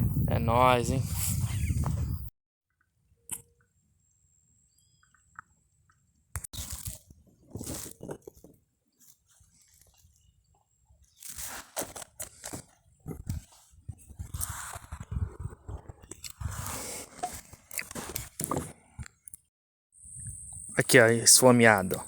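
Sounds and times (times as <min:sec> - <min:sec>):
close-up crunching and rustling: 0:06.5 - 0:19.1.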